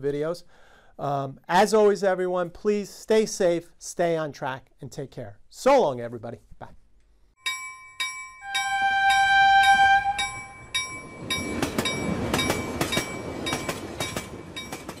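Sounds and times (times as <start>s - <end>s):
train horn: 8.4s - 10.6s
train rumbling past: 8.4s - 15.0s
wheels clacking over rail joints: 10.5s - 15.0s.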